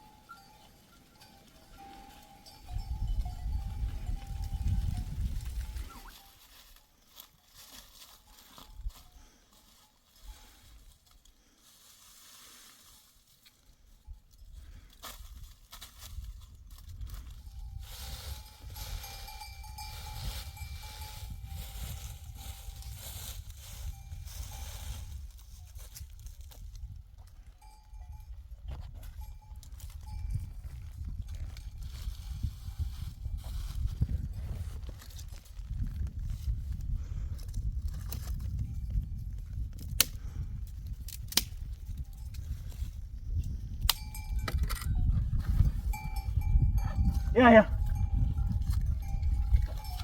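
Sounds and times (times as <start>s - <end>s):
thin ringing tone: 0.0s - 6.6s, 17.4s - 25.2s, 27.5s - 30.9s, 44.0s - 50.0s
wind on microphone: 2.6s - 6.2s, 16.1s - 50.0s.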